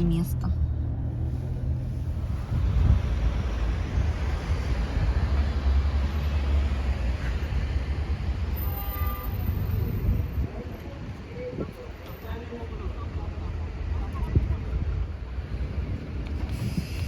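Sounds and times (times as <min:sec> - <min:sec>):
car engine low rumble: 0:00.0 - 0:08.6
wind-like road noise: 0:00.0 - 0:17.0.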